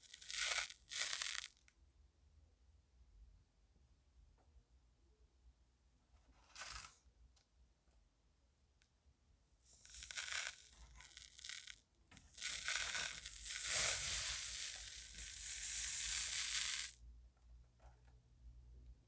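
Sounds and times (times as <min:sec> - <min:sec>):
sand scratching: 0:00.2 - 0:01.5, 0:09.8 - 0:11.8, 0:12.4 - 0:17.0.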